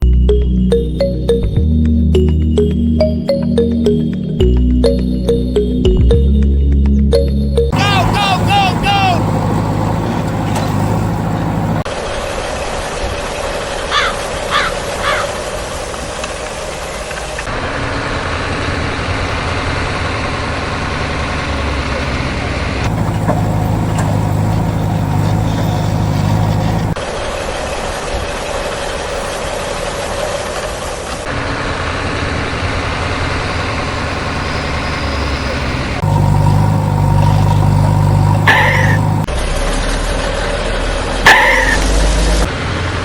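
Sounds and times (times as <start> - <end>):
truck engine idling: 7.1 - 43.0
harsh bird calls: 7.8 - 11.8, 13.9 - 15.5, 34.8 - 39.3.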